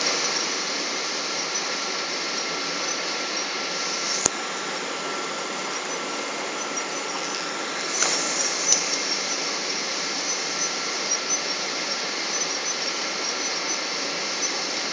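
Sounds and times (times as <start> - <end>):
airliner cabin hiss: 3.7 - 12.1.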